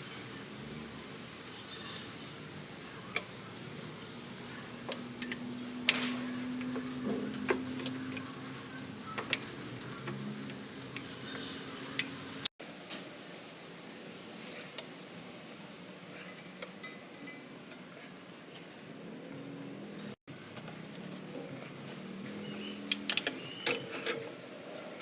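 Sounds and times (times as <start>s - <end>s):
clicks and taps on engine parts: 2.8s - 12.2s, 20.5s - 24.6s.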